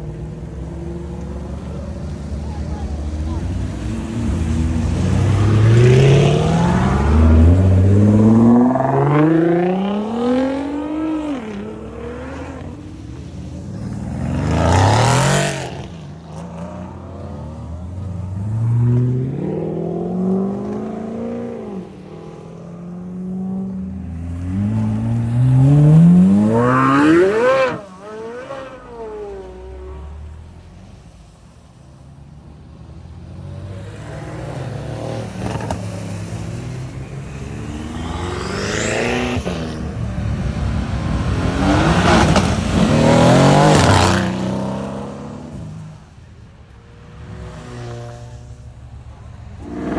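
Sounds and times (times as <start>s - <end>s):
cars accelerating hard: 0.0s - 49.9s.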